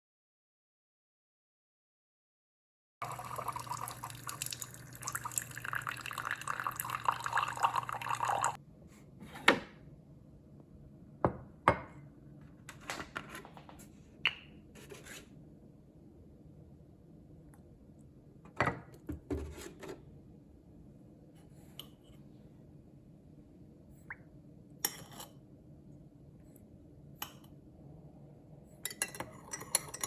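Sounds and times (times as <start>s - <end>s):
water running and splashing: 3.0s - 8.6s
low steady hum: 3.0s - 30.0s.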